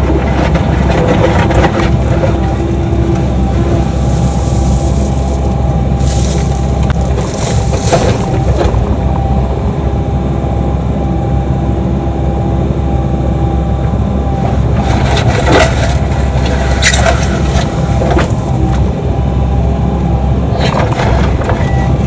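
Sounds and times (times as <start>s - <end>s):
bucket knocking and scraping: 0.0s - 9.5s, 14.5s - 18.8s
excavator diesel engine: 0.0s - 22.0s.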